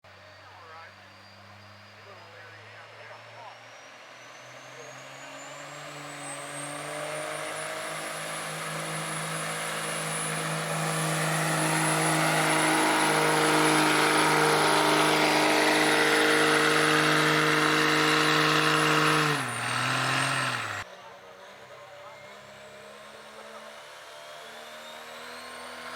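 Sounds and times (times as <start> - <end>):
diesel engine revving hard: 4.6 - 20.9.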